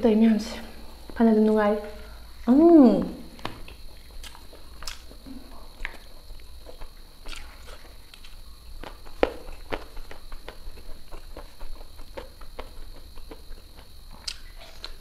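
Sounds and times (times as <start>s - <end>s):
person chewing with wet clicks: 3.4s - 15.0s.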